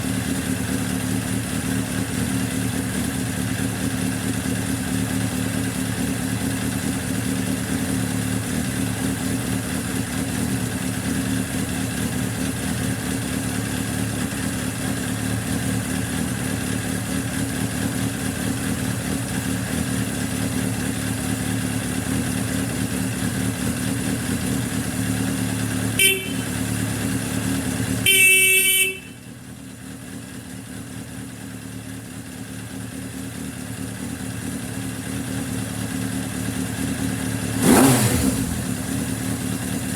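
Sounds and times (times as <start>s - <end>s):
motorcycle engine idling: 0.0s - 39.9s
motorcycle horn: 25.0s - 29.6s, 37.5s - 39.6s.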